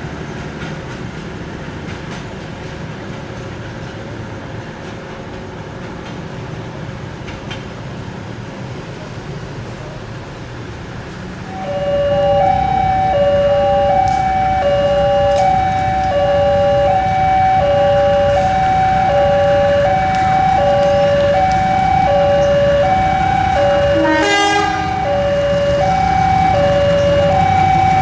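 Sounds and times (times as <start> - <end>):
passenger train rumbling past: 0.0 - 28.0
two-pitch electronic warning tone: 11.5 - 28.0.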